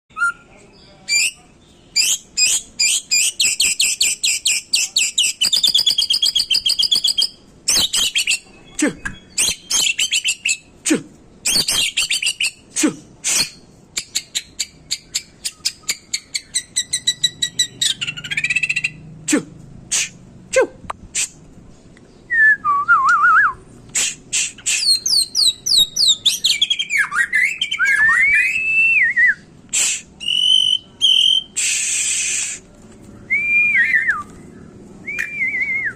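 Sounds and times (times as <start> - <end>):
bird singing whistles and trills: 1.1 - 10.7, 11.4 - 12.6, 24.5 - 29.5, 30.2 - 32.2, 33.2 - 35.9.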